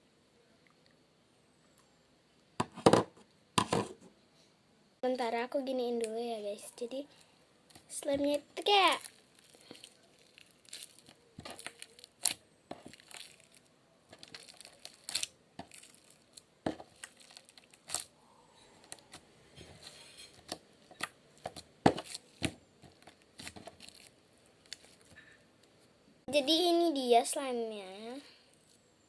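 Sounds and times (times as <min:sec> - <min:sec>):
quiet rustling: 0:06.6 - 0:26.0
slime clicks and crackles: 0:08.6 - 0:18.1, 0:20.4 - 0:25.2.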